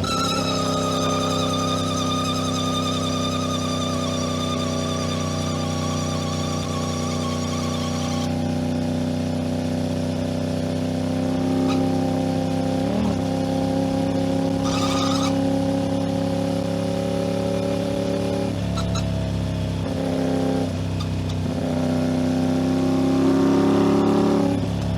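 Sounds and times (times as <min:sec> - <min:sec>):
high thin whine: 0:00.0 - 0:08.4
motorcycle engine running: 0:00.0 - 0:24.9.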